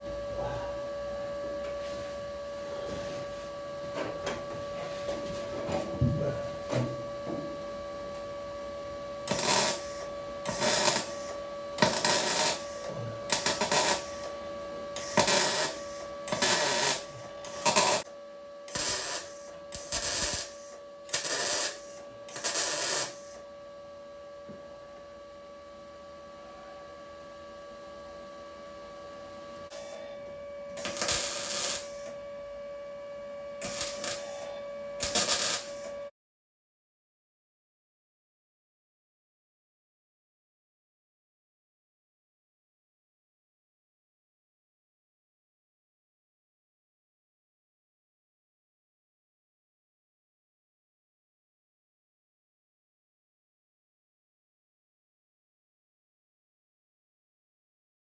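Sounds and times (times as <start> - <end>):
steady hum: 0.0 - 36.1
welder crackling bursts: 9.2 - 14.3, 15.0 - 18.0, 18.7 - 23.4, 30.8 - 32.2, 33.6 - 35.9.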